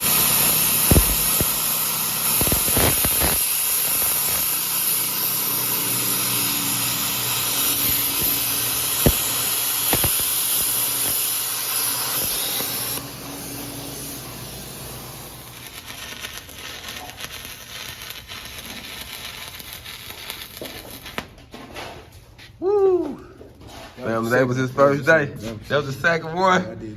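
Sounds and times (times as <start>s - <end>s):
welding arc hissing and crackling: 0.0s - 21.4s.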